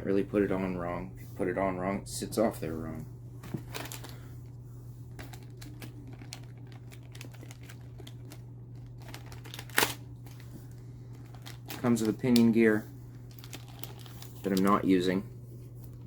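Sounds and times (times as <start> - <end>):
steady low hum: 0.0 - 16.0
packaging rustling and clicking: 3.5 - 4.2, 5.1 - 14.9.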